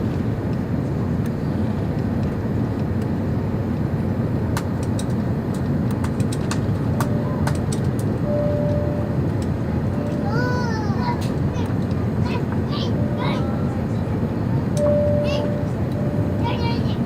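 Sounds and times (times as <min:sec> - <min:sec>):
airliner cabin engine rumble: 0:00.0 - 0:17.0
short steady tone: 0:08.2 - 0:09.2, 0:14.8 - 0:16.5.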